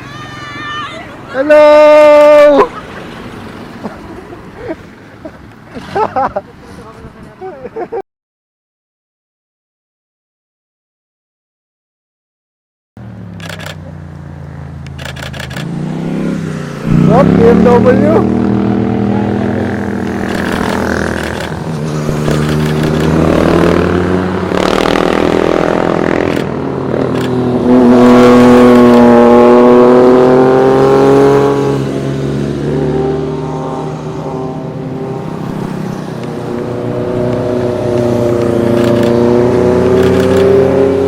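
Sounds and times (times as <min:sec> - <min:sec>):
motorcycles revving past: 0:15.4 - 0:41.0.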